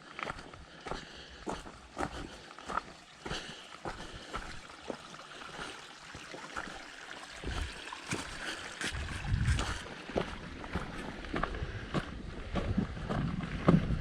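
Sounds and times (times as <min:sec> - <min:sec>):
footsteps on a trail: 0:00.0 - 0:14.0
wind buffeting microphone: 0:08.9 - 0:10.3, 0:11.2 - 0:14.0.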